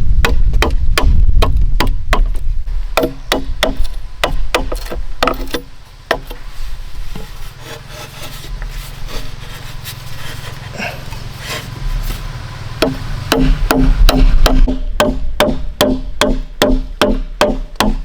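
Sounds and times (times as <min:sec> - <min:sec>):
sharp wooden knocks: 0:00.2 - 0:06.4, 0:12.8 - 0:18.0
saw cutting wood: 0:07.1 - 0:14.7.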